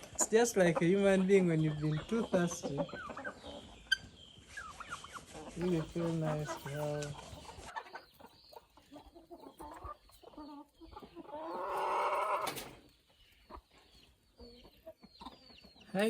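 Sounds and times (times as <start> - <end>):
chickens clucking: 0.0 - 16.0
chicken calling loudly: 11.3 - 12.6.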